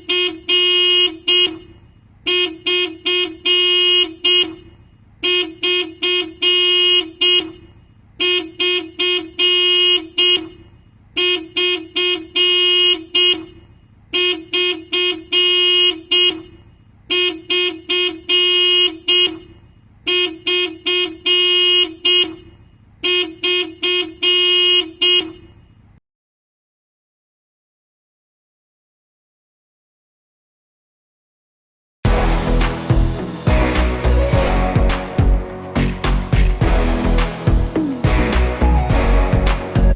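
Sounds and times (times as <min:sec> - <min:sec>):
car alarm horn toots and blast: 0:00.0 - 0:25.7, 0:32.1 - 0:39.9.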